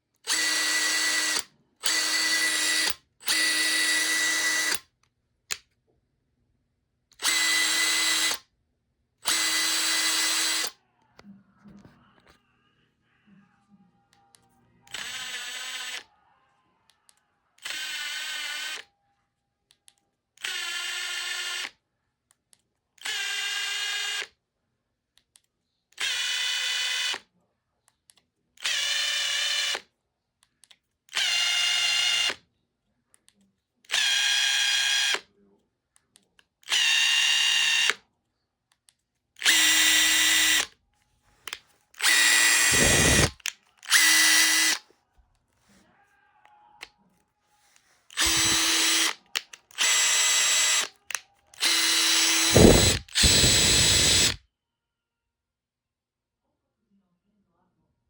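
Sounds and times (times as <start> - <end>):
impact driver motor whining: 0.3 - 4.8, 7.2 - 8.4, 9.2 - 10.7, 14.9 - 16.0, 31.1 - 32.4, 36.7 - 38.0, 39.4 - 40.7, 42.0 - 44.8, 48.1 - 54.4.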